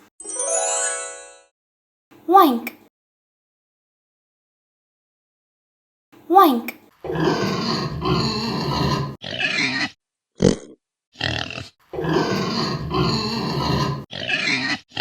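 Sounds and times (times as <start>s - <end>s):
pig oinking and grunting: 7.0s - 15.0s.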